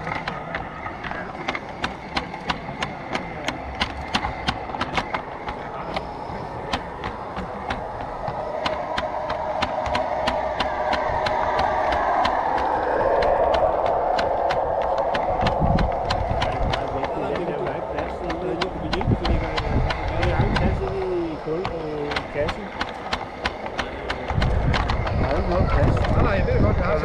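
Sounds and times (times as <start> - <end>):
rolling rumble of train: 0.0 - 27.0
train wheels clicking over rail joints: 0.0 - 27.0.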